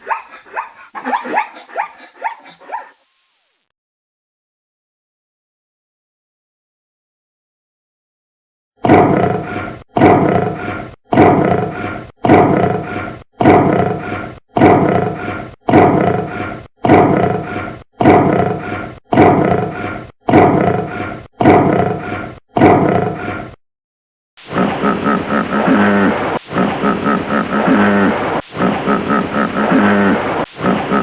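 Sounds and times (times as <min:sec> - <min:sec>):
large animal roaring: 0:08.8 - 0:23.6.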